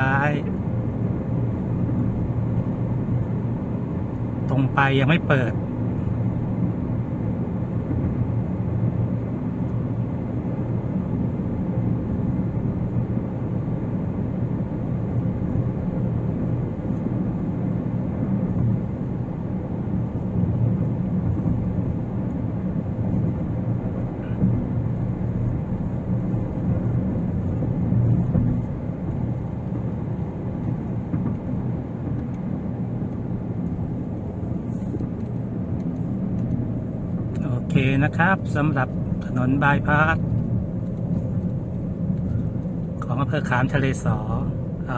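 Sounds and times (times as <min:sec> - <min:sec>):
car engine hum: 0:00.0 - 0:44.9.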